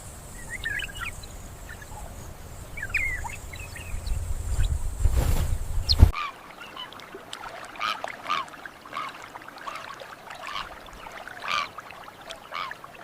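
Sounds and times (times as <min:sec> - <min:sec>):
birds calling: 0:00.0 - 0:05.0.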